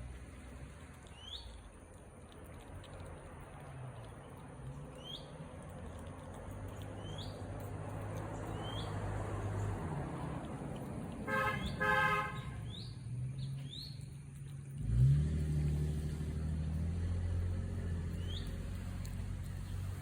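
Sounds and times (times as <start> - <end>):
vehicle engine running: 2.6 - 20.0
birds chirping: 6.9 - 10.3, 11.3 - 14.8, 18.0 - 18.8
vehicle horn toots: 11.3 - 12.6.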